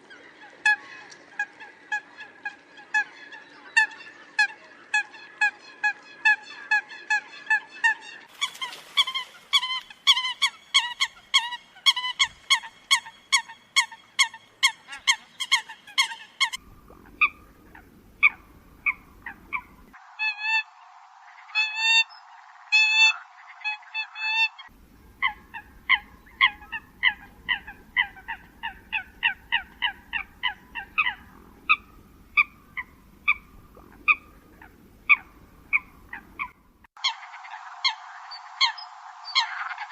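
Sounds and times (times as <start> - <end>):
coot honking calls: 8.3 - 20.7
background hiss: 8.3 - 39.9.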